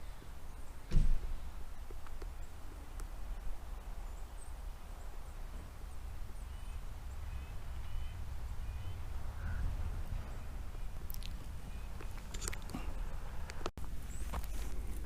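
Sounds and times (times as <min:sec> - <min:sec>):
wind on microphone: 0:03.2 - 0:13.7
bird calling: 0:04.0 - 0:15.0
footsteps on forest trail: 0:10.7 - 0:15.0.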